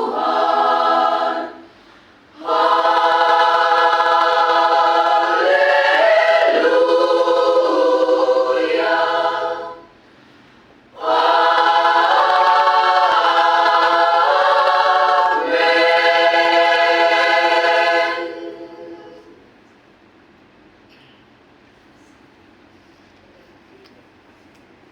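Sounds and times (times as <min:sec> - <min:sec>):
choir singing unaccompanied: 0:00.0 - 0:10.0, 0:11.0 - 0:19.5.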